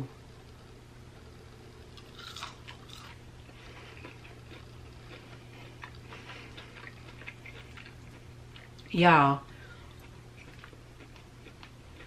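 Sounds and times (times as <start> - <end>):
chewing and crunching: 1.9 - 9.0, 9.7 - 12.0.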